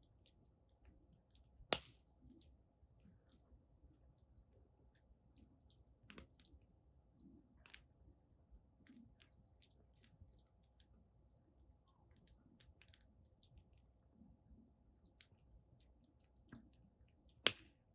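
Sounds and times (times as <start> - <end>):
bonfire crackling and popping: 1.6 - 2.5, 5.5 - 6.5, 16.5 - 17.8.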